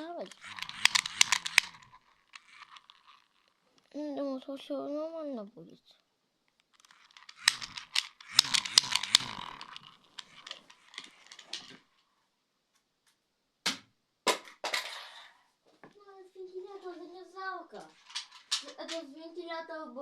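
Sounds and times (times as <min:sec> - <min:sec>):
plastic fan clicking and rattling: 0:00.0 - 0:04.0, 0:06.6 - 0:11.9, 0:17.8 - 0:19.2.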